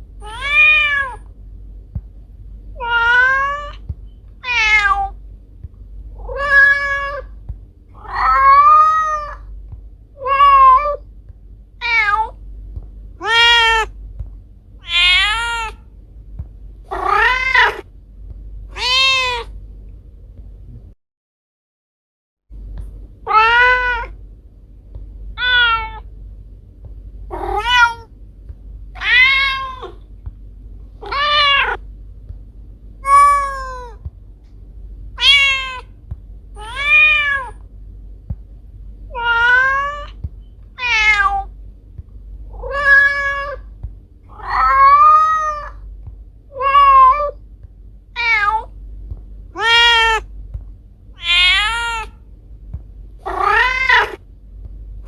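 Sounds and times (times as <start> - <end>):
steady low hum: 0.0 - 21.0, 22.5 - 55.0
cat meowing: 0.2 - 1.2, 2.8 - 3.8, 4.4 - 5.2, 6.2 - 7.3, 8.0 - 9.5, 11.8 - 12.4, 13.2 - 13.9, 14.8 - 15.8, 16.9 - 17.8, 18.7 - 19.5, 23.3 - 24.2, 25.4 - 26.0, 27.3 - 28.1, 29.0 - 30.0, 31.0 - 31.8, 33.0 - 34.0, 35.2 - 35.9, 36.6 - 37.6, 39.1 - 40.2, 40.8 - 41.5, 42.5 - 43.7, 44.3 - 45.8, 46.5 - 47.4, 48.2 - 48.7, 49.6 - 50.3, 51.2 - 52.2, 53.2 - 54.2.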